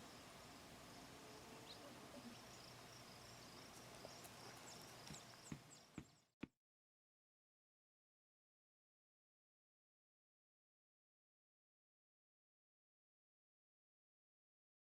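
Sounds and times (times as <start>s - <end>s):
faint high steady buzz: 0.0s - 6.0s.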